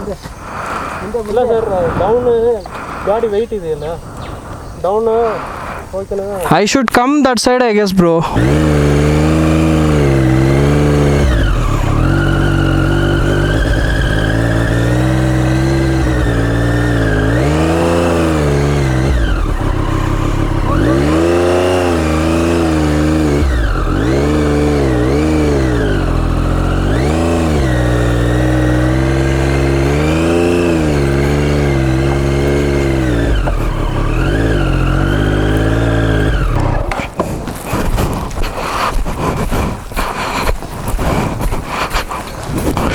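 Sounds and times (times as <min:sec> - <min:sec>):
motorcycle engine revving: 0:08.2 - 0:41.6.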